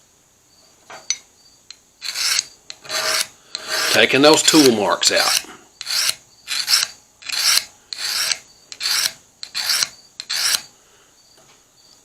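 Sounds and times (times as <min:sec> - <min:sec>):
file stroking metal edge: 0:02.0 - 0:10.7.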